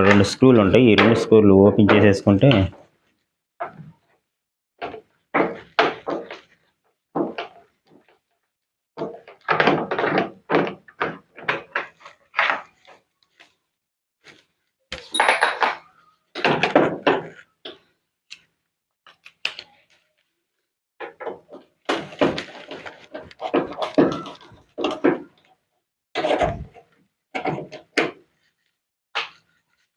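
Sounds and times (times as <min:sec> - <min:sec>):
plastic panel knocks and clatter: 0:07.2 - 0:07.6, 0:09.0 - 0:12.6, 0:15.2 - 0:17.9, 0:21.0 - 0:25.4.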